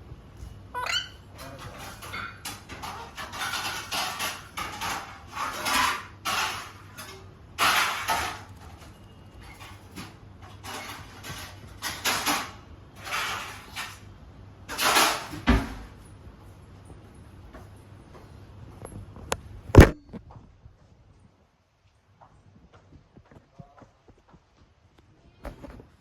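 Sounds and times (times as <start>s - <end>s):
parrot squawking: 0.7s - 1.3s.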